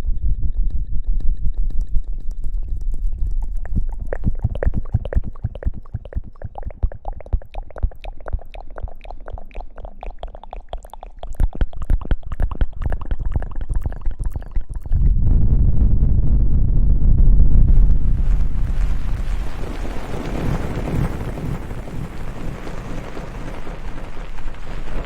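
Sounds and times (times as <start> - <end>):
low rumble: 11.9 - 20.1.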